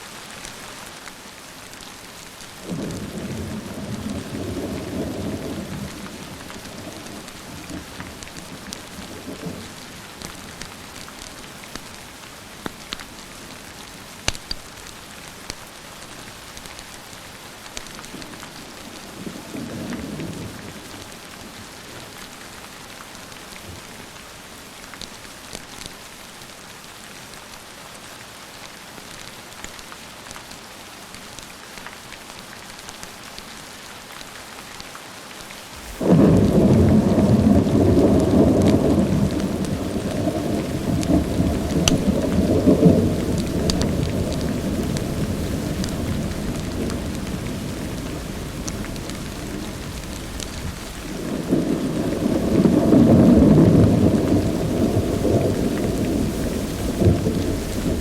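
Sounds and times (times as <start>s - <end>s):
steady rain: 0.0s - 58.0s
fireplace crackling: 35.7s - 36.2s
distant thunder rumbling: 35.8s - 58.0s
loud thunderclap: 35.8s - 58.0s.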